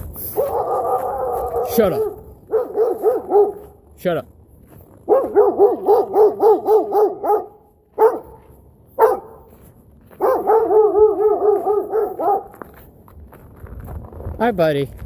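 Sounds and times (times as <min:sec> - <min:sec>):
dog barking: 0:00.3 - 0:03.8, 0:05.1 - 0:09.5, 0:10.1 - 0:12.7.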